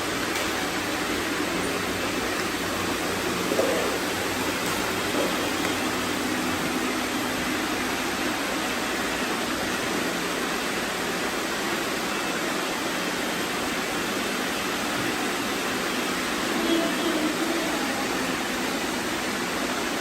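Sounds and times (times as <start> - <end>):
robot vacuums running: 0.0 - 6.8.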